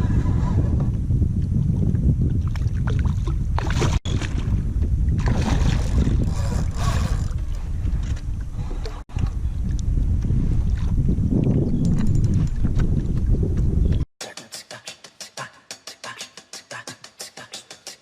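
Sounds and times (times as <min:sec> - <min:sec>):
wind buffeting microphone: 0:00.0 - 0:14.1.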